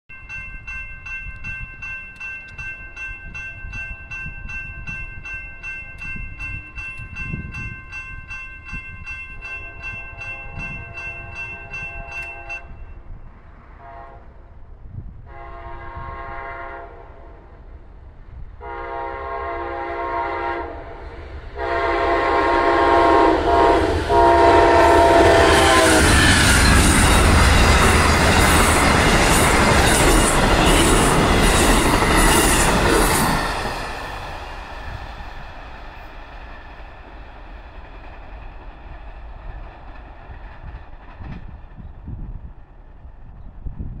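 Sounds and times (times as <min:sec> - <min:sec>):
crossing bell dinging: 0:00.1 - 0:13.1, 0:22.7 - 0:34.7
locomotive horn blasts: 0:10.4 - 0:12.8, 0:13.8 - 0:14.3, 0:15.3 - 0:17.3, 0:18.6 - 0:20.9, 0:21.6 - 0:26.4
train wheels clattering on rail: 0:21.0 - 0:44.0.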